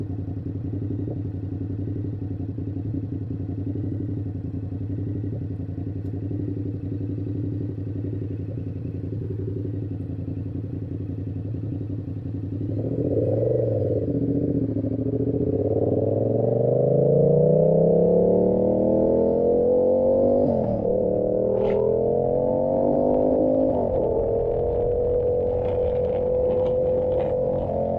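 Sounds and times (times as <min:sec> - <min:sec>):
motorcycle engine idling and revving: 0:00.0 - 0:27.9
motorcycle accelerating away: 0:12.4 - 0:27.9.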